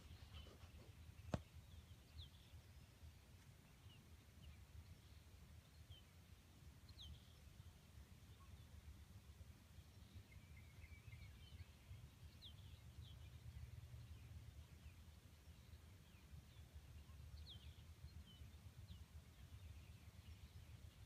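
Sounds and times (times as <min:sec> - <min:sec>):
faint bird chirps: 0:08.3 - 0:08.8, 0:15.6 - 0:21.0.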